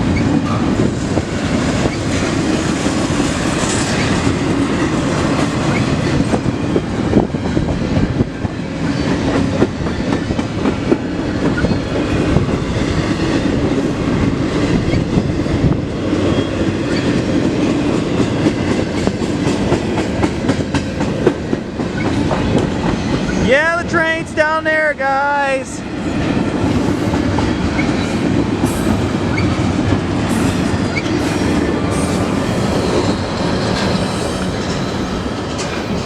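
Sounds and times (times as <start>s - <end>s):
train wheels rumbling on rail: 0.0s - 36.0s
wheels clacking over rail joints: 26.1s - 36.0s.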